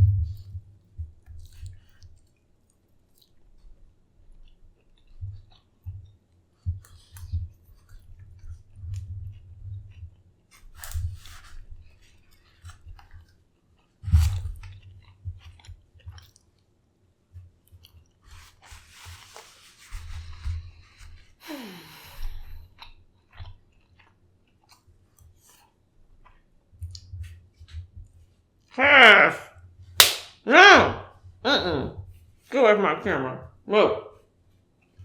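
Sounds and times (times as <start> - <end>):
person chewing food: 0.0 - 16.6, 17.4 - 28.8.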